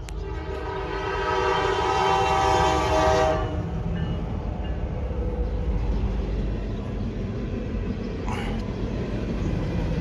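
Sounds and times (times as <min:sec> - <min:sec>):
low rumble of train: 0:00.0 - 0:10.0
locomotive air horn chord: 0:00.2 - 0:03.8.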